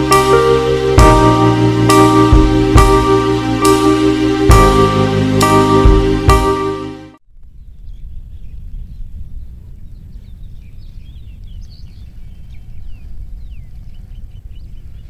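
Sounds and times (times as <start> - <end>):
small birds chirping and whistling: 7.6 - 15.0.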